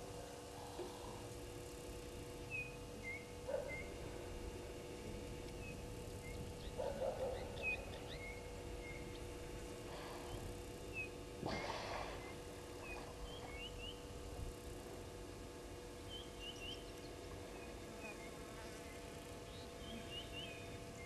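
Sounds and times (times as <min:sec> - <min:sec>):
faint steady hum: 0:00.0 - 0:21.0
low rough bird calls: 0:09.8 - 0:14.1.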